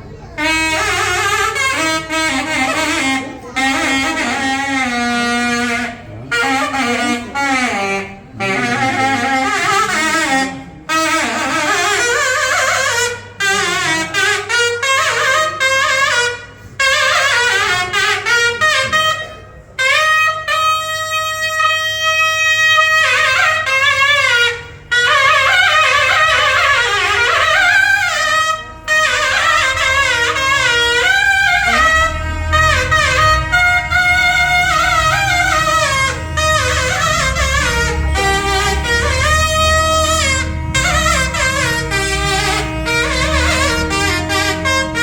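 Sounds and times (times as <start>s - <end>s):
reed wind instrument melody: 0.0s - 45.0s.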